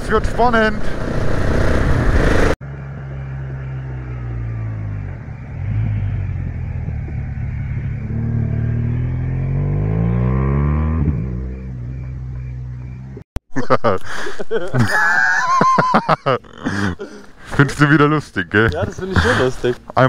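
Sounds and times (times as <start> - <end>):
motorcycle engine revving: 0.8 - 13.2
motorcycle engines idling: 2.7 - 9.4.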